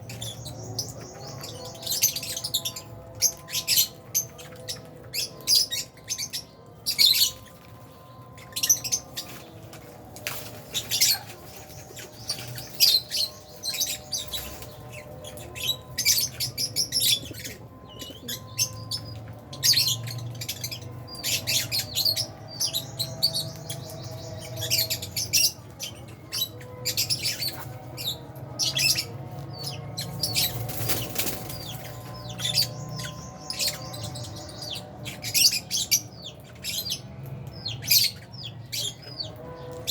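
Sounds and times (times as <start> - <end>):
birds chirping: 0.0 - 39.9
wings flapping: 30.2 - 31.9.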